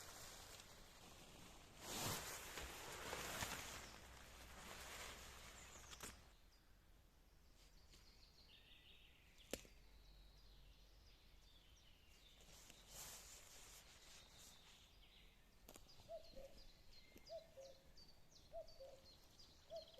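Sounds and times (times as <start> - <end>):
soft rustle: 0.0 - 6.3, 12.1 - 17.8
faint bird chirps: 3.4 - 19.9.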